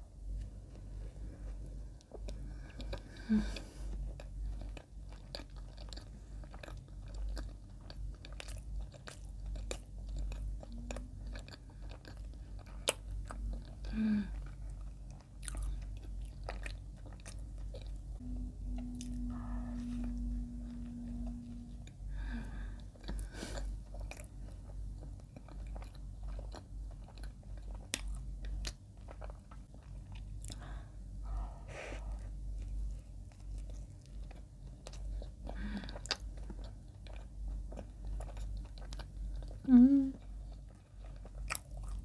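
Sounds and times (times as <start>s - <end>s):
person humming mmm: 18.2s - 23.6s, 39.6s - 40.2s.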